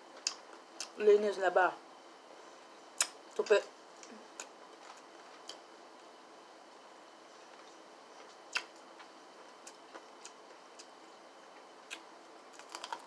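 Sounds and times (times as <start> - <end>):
lip smacks: 3.0 - 3.2, 8.5 - 8.8
crunchy chewing: 11.6 - 13.0.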